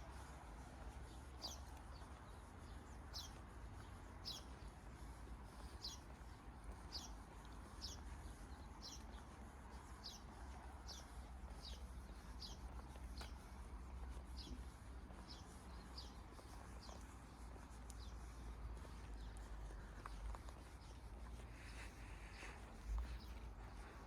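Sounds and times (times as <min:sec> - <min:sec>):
small bird chirping: 0:01.1 - 0:09.3, 0:09.9 - 0:13.4, 0:14.3 - 0:21.1.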